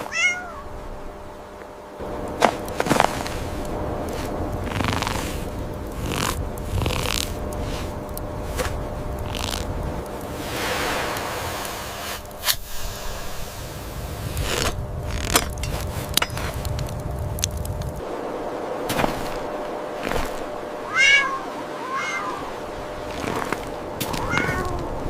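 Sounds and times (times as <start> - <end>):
cat meowing: 0.0 - 0.7, 20.8 - 22.6, 24.0 - 25.0
low rumble: 0.5 - 25.0.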